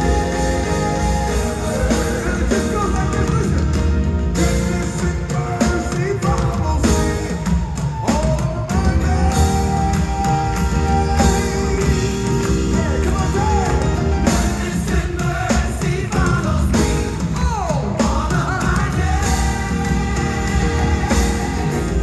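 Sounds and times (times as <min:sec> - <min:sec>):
gospel band playing: 0:00.0 - 0:22.0
person singing: 0:00.0 - 0:22.0.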